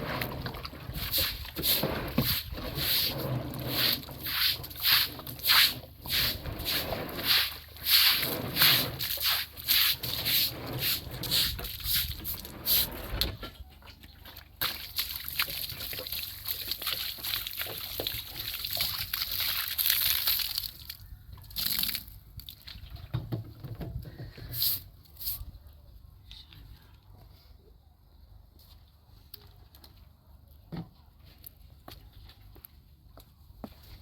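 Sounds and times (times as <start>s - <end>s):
water sloshing and splashing: 0.0s - 21.0s.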